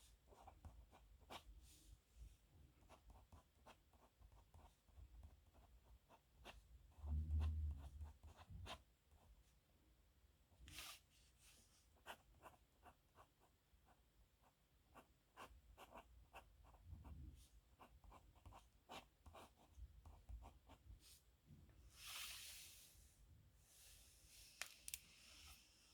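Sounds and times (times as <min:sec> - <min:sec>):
pen scratching on paper: 0:07.8 - 0:08.8, 0:15.0 - 0:16.8, 0:17.8 - 0:20.8.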